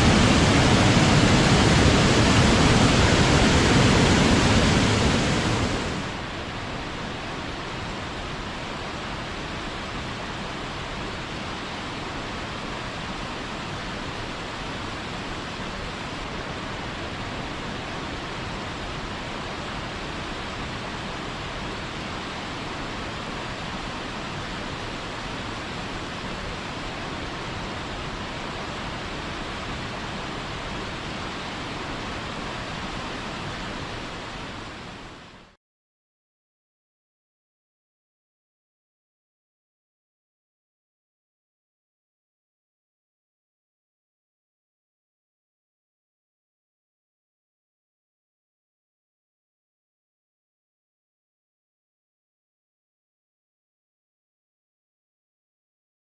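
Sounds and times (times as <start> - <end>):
waterfall rushing: 0.0 - 35.6.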